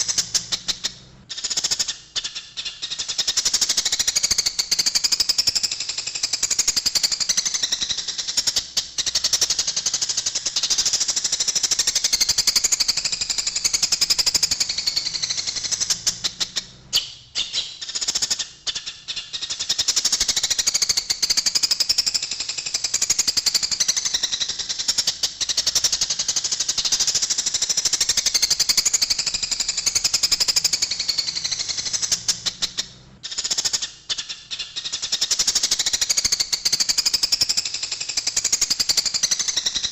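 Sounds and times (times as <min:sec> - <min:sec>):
sparrows chattering: 0:00.0 - 0:05.2, 0:06.3 - 0:22.2, 0:22.8 - 0:37.6.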